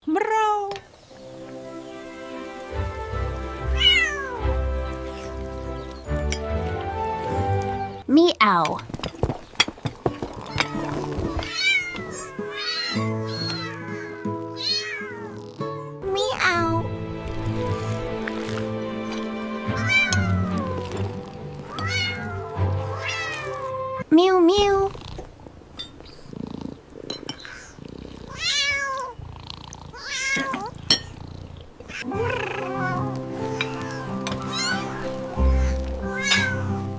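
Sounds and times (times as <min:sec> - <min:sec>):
background music with held notes: 0:01.0 - 0:24.1, 0:32.0 - 0:36.9
cat meowing: 0:03.7 - 0:04.6, 0:11.4 - 0:15.4, 0:19.6 - 0:23.8, 0:28.3 - 0:29.2, 0:30.0 - 0:30.8, 0:31.9 - 0:36.8
cat purring: 0:24.6 - 0:25.4, 0:26.0 - 0:33.9.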